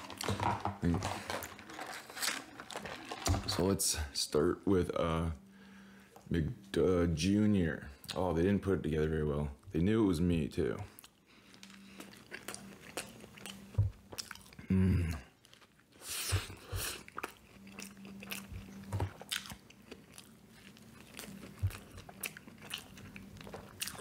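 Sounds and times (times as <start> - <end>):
biting and chewing sandwich: 11.0 - 24.0.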